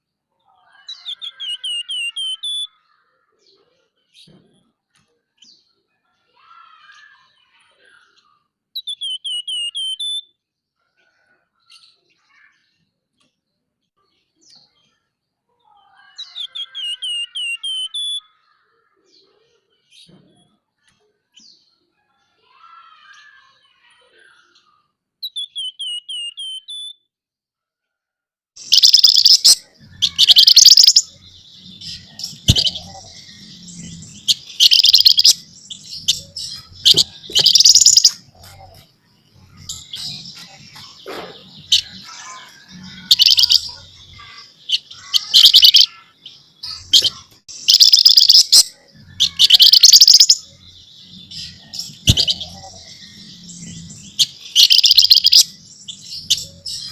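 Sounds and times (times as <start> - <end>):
songbird harsh rasping chatter: 28.6 - 56.9.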